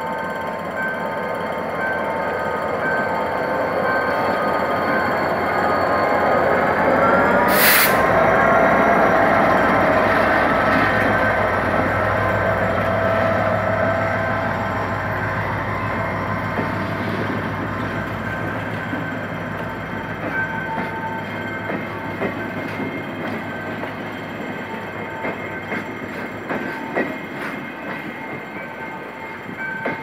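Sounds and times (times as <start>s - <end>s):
locomotive engine drone: 0.0s - 29.1s
train wheels clicking over rail joints: 15.9s - 28.8s.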